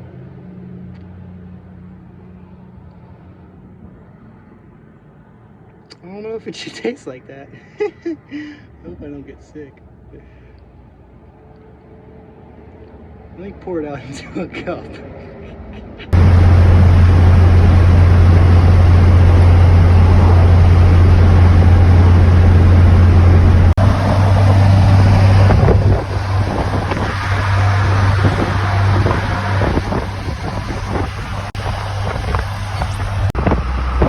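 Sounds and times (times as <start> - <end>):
vehicle engine drone: 0.0 - 6.1, 8.4 - 34.0
wind rushing over microphone: 16.1 - 34.0.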